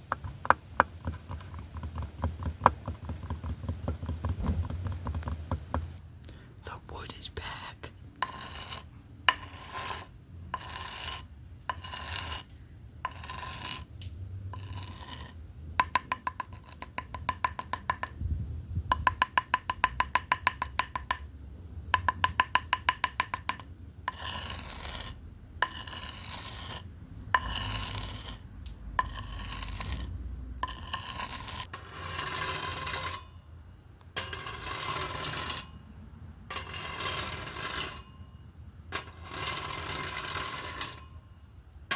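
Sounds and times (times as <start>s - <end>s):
scratching on wooden bat: 0.0s - 6.0s, 6.7s - 18.2s, 22.0s - 33.3s.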